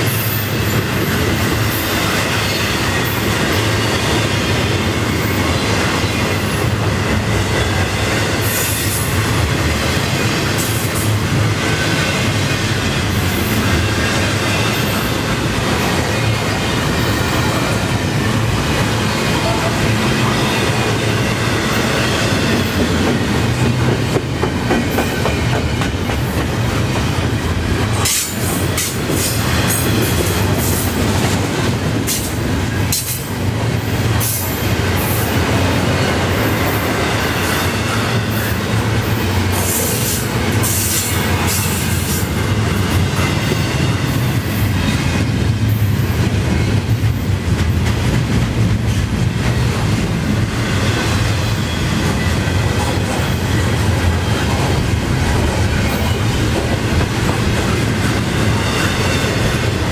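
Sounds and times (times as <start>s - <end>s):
clickety-clack over rail joints: 0.0s - 59.9s
train wheels rumbling on rails: 0.0s - 59.9s.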